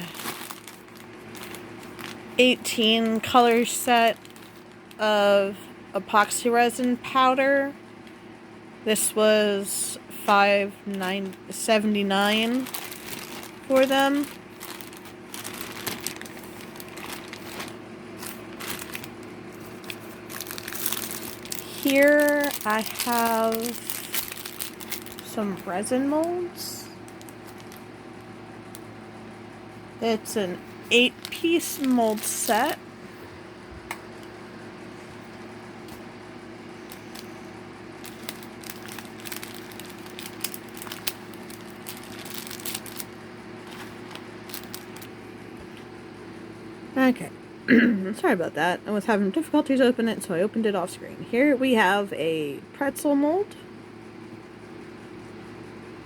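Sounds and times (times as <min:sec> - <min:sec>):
packaging crinkling: 0:00.0 - 0:05.0, 0:10.3 - 0:28.0, 0:30.6 - 0:33.4, 0:36.7 - 0:45.2
low background hum: 0:00.0 - 0:56.0.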